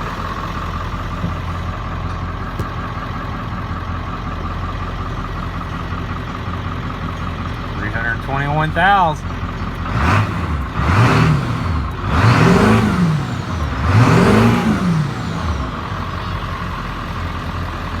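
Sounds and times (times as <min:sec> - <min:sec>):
diesel engine revving and idling: 0:00.0 - 0:18.0.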